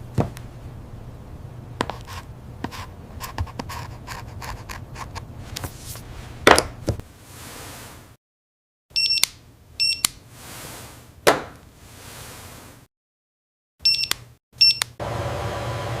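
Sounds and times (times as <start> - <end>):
low mechanical hum: 0.0 - 8.1, 14.2 - 16.0.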